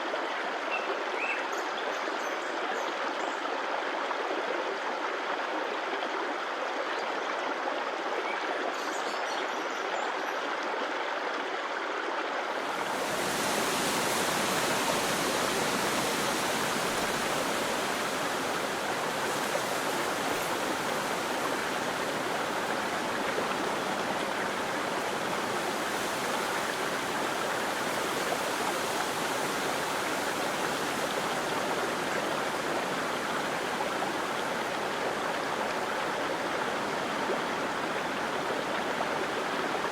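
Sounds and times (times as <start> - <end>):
water rushing over rocks: 12.4 - 39.9.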